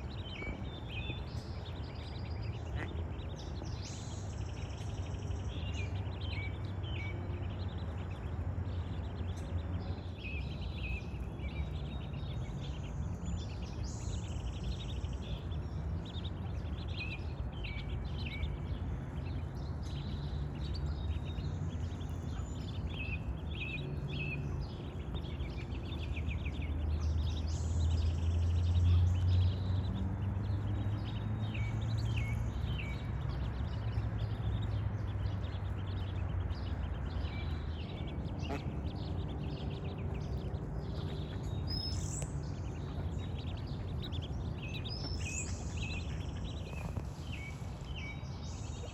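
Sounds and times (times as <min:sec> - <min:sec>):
small birds chirping: 0:00.0 - 0:48.9
steady low rumble: 0:14.8 - 0:48.9.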